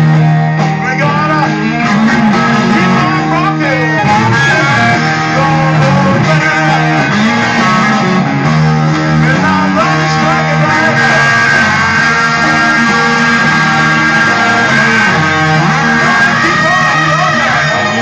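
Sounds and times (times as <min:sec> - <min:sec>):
rock music with electric guitar: 0:00.0 - 0:18.0.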